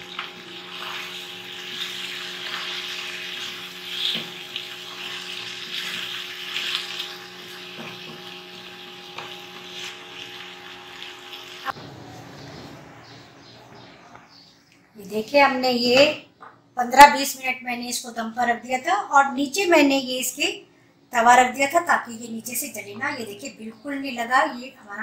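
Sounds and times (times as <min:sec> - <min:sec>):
food sizzling in a wok: 0:00.0 - 0:11.8
steady mechanical hum: 0:00.0 - 0:25.0.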